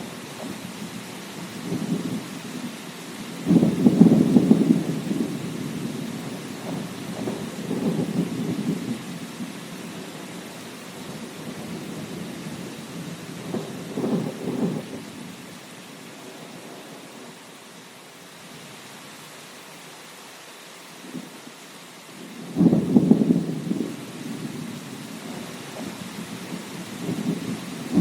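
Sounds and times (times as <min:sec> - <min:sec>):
steady rain: 0:00.0 - 0:28.0
thunder rumbling: 0:03.4 - 0:10.2, 0:11.2 - 0:15.3, 0:22.4 - 0:28.0.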